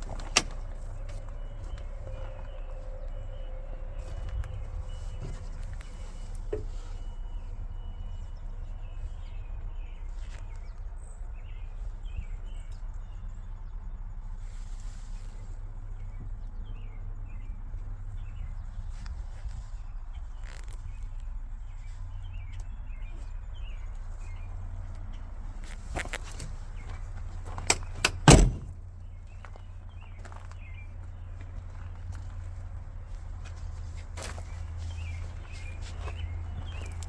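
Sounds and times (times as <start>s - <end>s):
diesel engine idling: 26.4s - 37.0s
birds chirping: 34.4s - 37.0s.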